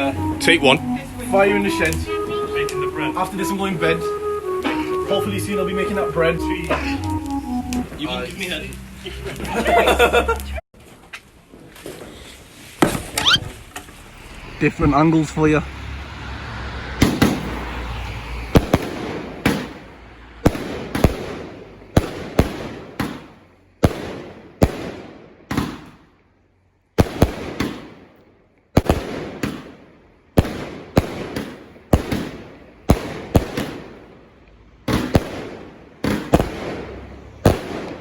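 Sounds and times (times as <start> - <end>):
fireworks bangs: 16.8 - 26.0, 27.0 - 34.3, 34.9 - 38.0.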